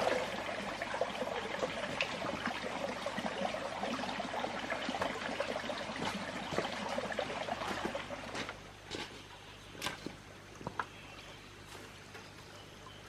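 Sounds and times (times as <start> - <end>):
water drips: 0.0 - 8.6
water trickling: 0.0 - 8.9.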